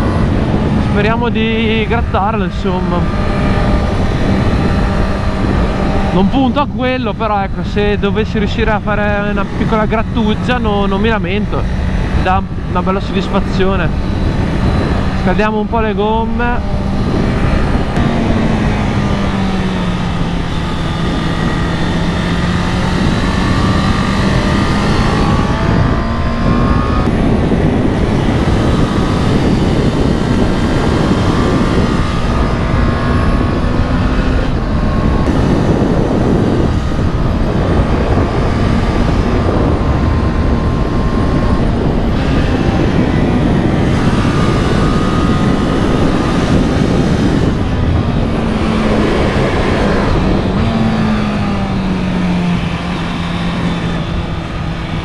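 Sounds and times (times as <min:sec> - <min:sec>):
motorcycle engine revving: 0:00.0 - 0:55.0
wind rush on microphone: 0:00.0 - 0:55.0.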